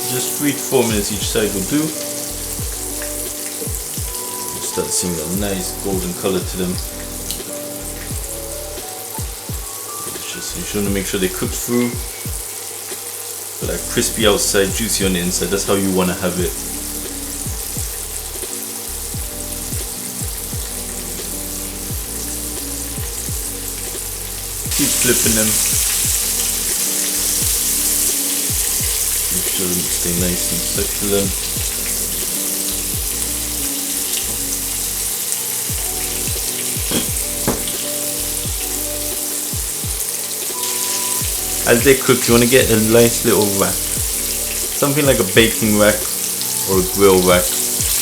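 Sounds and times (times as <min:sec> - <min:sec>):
food deep-frying in oil: 0:00.0 - 0:48.0
background music with bass thumps: 0:00.9 - 0:12.5, 0:13.6 - 0:15.7, 0:16.4 - 0:40.1, 0:40.9 - 0:48.0.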